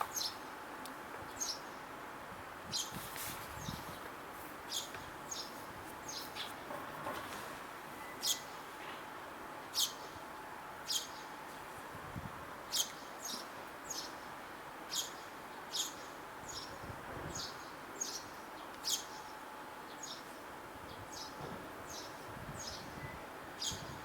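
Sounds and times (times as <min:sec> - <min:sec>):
outdoor background hiss: 0:00.0 - 0:24.0
sparrow chirping: 0:04.7 - 0:06.5, 0:08.2 - 0:08.6, 0:09.7 - 0:10.2, 0:10.8 - 0:11.4, 0:12.7 - 0:14.2, 0:14.9 - 0:19.3, 0:23.6 - 0:24.0.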